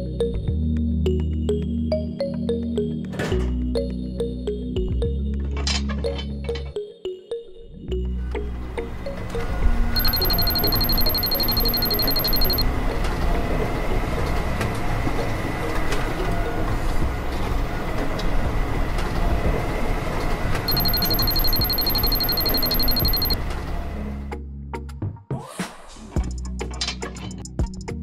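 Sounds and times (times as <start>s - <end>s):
rapid electronic beeping: 10.0s - 12.6s, 20.7s - 23.4s.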